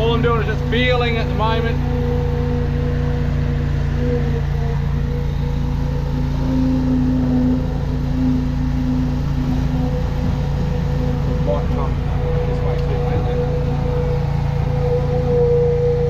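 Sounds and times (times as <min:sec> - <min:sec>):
drain jetter engine droning: 0:00.0 - 0:16.0.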